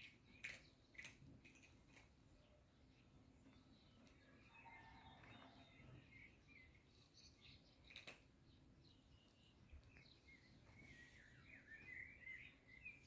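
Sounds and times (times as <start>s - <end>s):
birds chirping and warbling: 0.0s - 13.0s.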